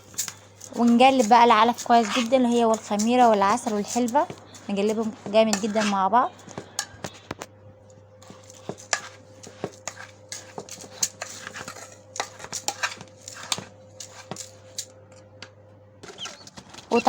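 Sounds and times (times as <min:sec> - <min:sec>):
dry grains stirred by hand: 0:00.0 - 0:06.5
faint steady hum: 0:00.0 - 0:17.0.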